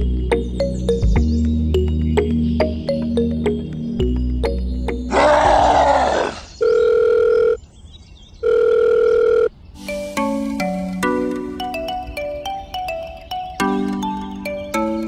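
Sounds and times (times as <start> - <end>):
light background music: 0.0 - 6.1, 9.8 - 15.0
telephone ringing tone beeps: 6.6 - 7.6, 8.4 - 9.6.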